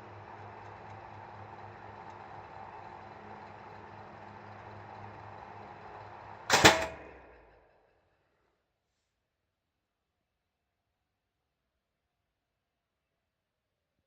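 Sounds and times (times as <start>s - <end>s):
ventilation fan motor hum: 0.0s - 7.4s
fan switch clack: 6.5s - 7.2s.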